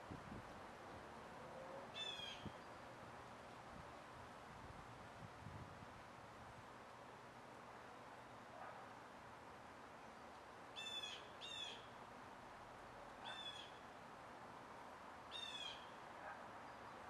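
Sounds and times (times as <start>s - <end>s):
faint steady hiss: 0.0s - 17.0s
bird calls: 10.8s - 11.9s, 13.2s - 13.8s.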